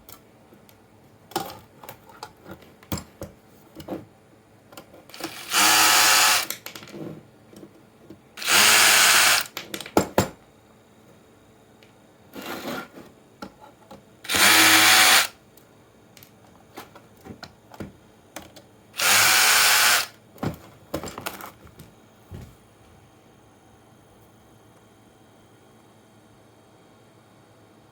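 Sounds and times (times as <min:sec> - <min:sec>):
electric drill-driver running: 0:05.1 - 0:06.6, 0:08.4 - 0:09.6, 0:14.3 - 0:15.4, 0:19.0 - 0:20.2.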